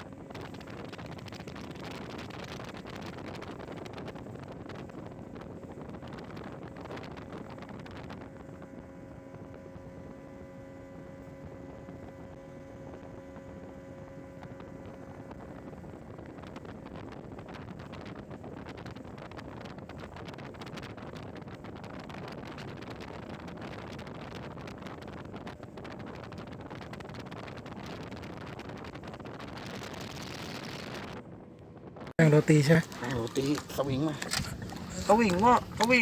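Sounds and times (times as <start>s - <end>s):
motorboat engine drone: 0.0s - 36.0s
pitched engine hum: 0.0s - 36.0s
wind buffeting microphone: 0.0s - 36.0s.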